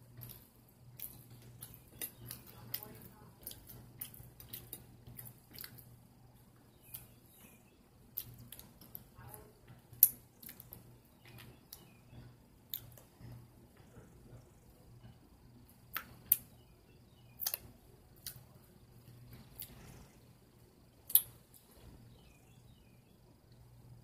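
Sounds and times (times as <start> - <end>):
faint low hum: 0.0 - 24.0
person chewing: 1.0 - 5.9, 18.2 - 18.4
mouth clicks: 17.4 - 18.4.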